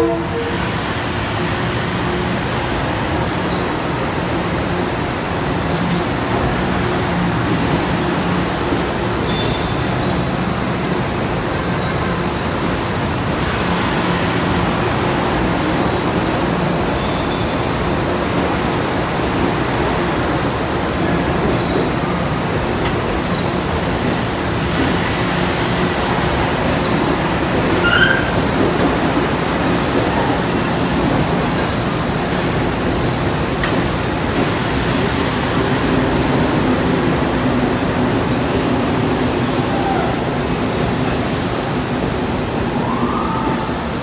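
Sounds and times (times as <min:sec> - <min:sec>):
electric train rolling past: 0:00.0 - 0:44.0
train wheel squeal: 0:09.2 - 0:10.3, 0:26.8 - 0:28.9.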